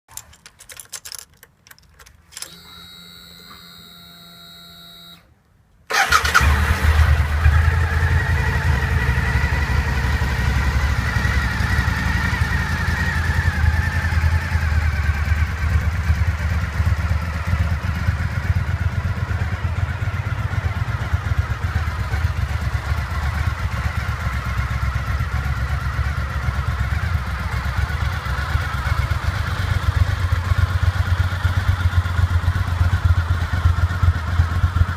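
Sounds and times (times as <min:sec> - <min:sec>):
motorcycle engine starting and idling: 0:00.1 - 0:05.3, 0:05.9 - 0:34.9
clicks: 0:00.1 - 0:06.0.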